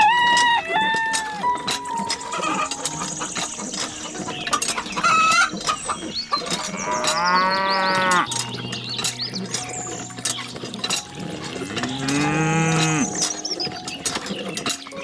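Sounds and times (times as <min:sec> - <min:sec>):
cow mooing: 0:06.4 - 0:08.6, 0:10.7 - 0:13.4.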